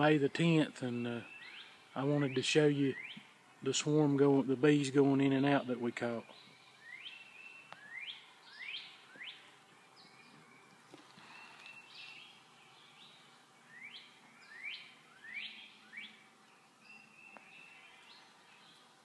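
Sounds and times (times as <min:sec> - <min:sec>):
songbird calling: 0:00.0 - 0:19.0.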